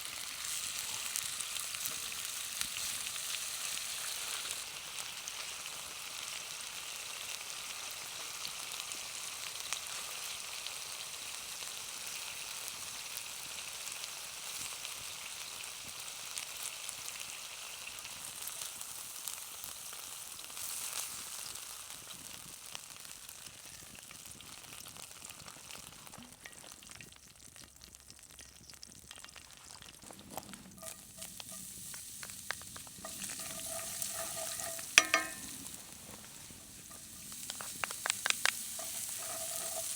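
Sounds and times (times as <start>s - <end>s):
chicken wings sizzling: 0.0s - 39.9s
small pops: 36.9s - 38.9s.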